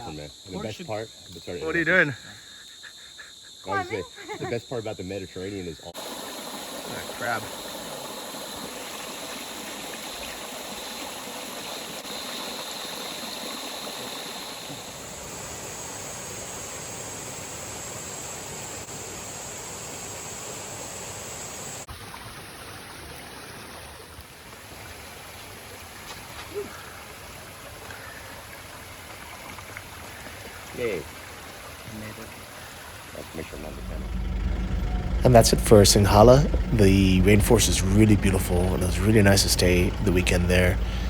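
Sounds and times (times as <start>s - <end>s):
stream rushing: 6.0s - 20.7s, 21.7s - 41.0s
steady high buzz: 33.6s - 41.0s.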